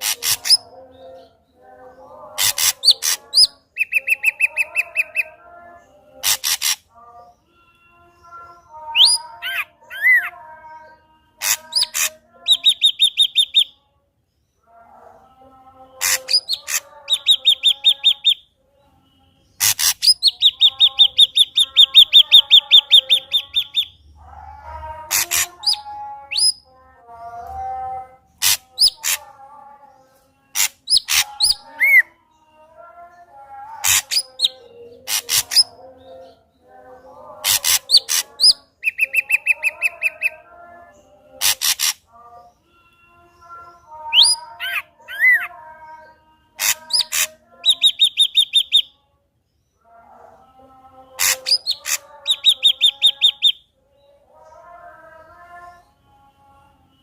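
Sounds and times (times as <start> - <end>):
bird singing varied song: 0.0 - 57.0.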